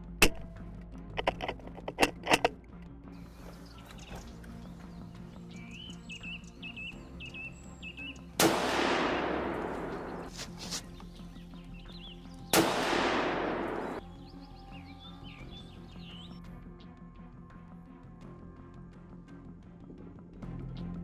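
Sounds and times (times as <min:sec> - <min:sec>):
background music: 0:00.0 - 0:21.0
birds chirping: 0:03.2 - 0:16.5
gunshots with rolling echo: 0:08.4 - 0:10.3, 0:12.6 - 0:14.0.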